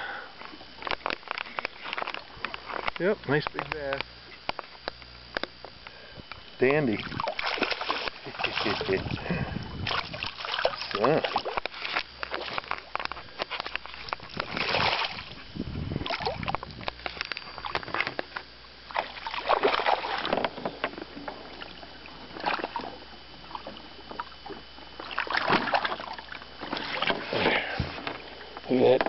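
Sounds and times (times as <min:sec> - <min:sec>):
water splashing around boat: 0:06.7 - 0:29.0.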